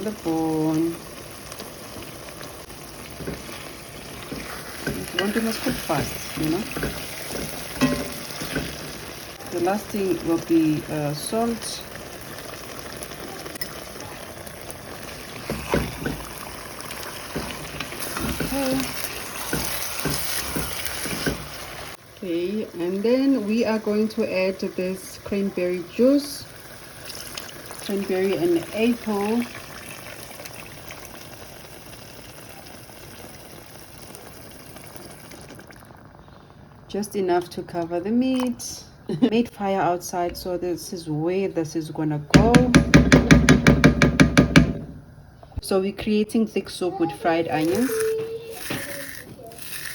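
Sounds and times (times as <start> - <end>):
meat sizzling in a pot: 0.0 - 36.0, 47.2 - 49.9.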